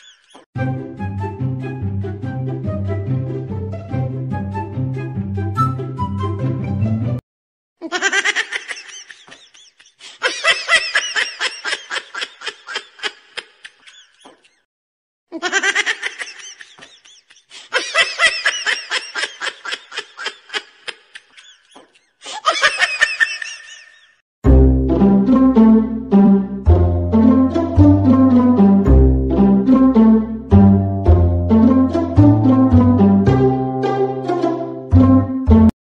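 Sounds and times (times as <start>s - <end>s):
high-pitched laughter: 0.0s - 0.4s, 7.8s - 14.6s, 15.3s - 24.2s.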